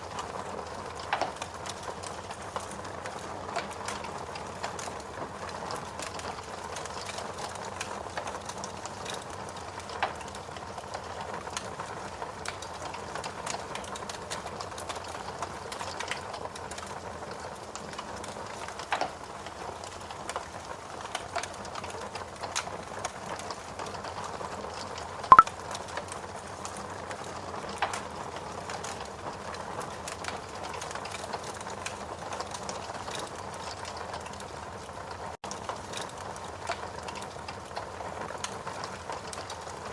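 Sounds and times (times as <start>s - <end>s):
wood fire crackling: 0.0s - 25.0s, 26.3s - 39.9s.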